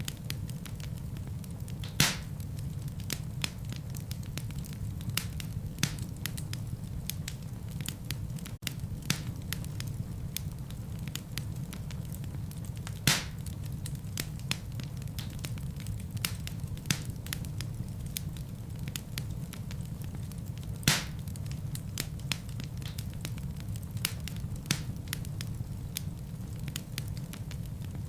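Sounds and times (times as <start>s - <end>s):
fire crackling and snapping: 0.0s - 28.0s
loud fire pops: 0.0s - 28.0s
rumble of flames: 0.0s - 28.0s.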